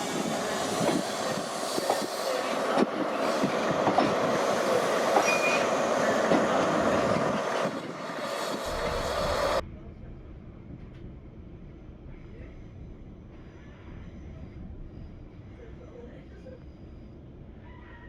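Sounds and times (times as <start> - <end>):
train wheels clattering over rail joints: 0.0 - 9.6
wheel squeal: 5.2 - 5.7.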